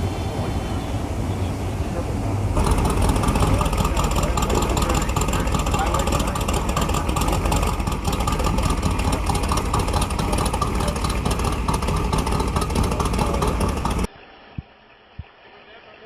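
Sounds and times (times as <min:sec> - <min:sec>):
car engine idling: 0:00.0 - 0:14.1.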